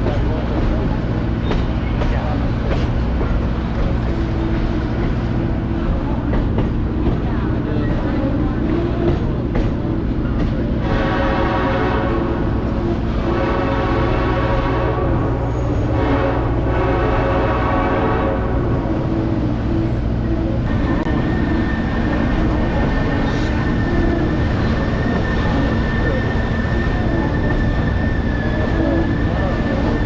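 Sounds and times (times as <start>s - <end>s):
moving train rumble: 0.0s - 30.0s
locomotive horn chord: 10.8s - 18.9s.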